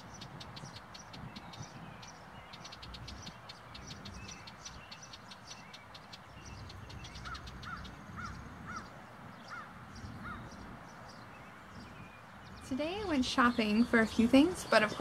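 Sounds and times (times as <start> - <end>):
high bird chips and ticks: 0.0 - 11.2.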